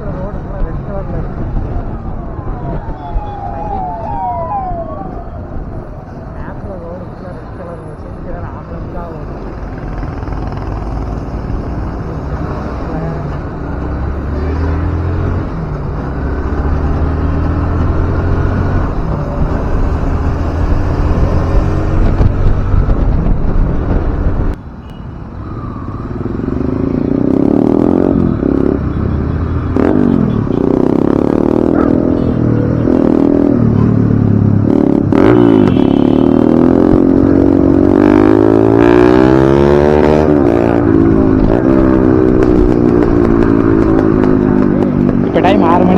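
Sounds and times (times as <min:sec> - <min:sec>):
wind rushing over microphone: 0:00.0 - 0:14.2, 0:16.9 - 0:24.6, 0:36.4 - 0:45.9
motorcycle engine running: 0:40.8 - 0:45.9.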